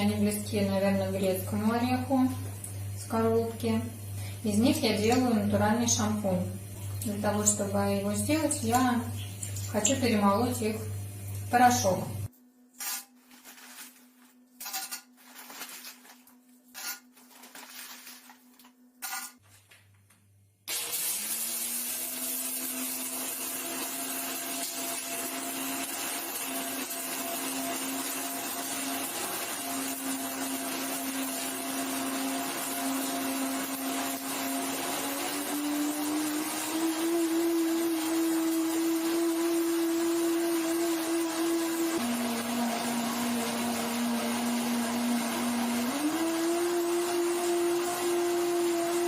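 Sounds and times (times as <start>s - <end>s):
blender motor grinding: 20.7s - 49.0s.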